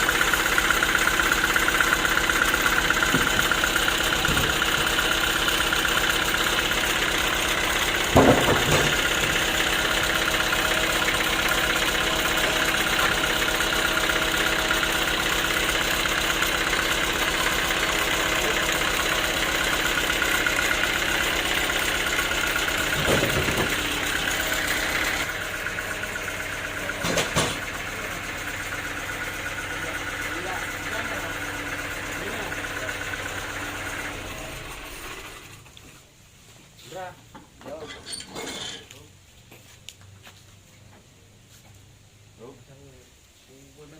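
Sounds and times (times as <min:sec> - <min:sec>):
band sawmill running: 0:00.0 - 0:36.1
sharp knocks: 0:03.0 - 0:03.6, 0:08.0 - 0:09.5, 0:22.9 - 0:23.9, 0:27.0 - 0:27.7.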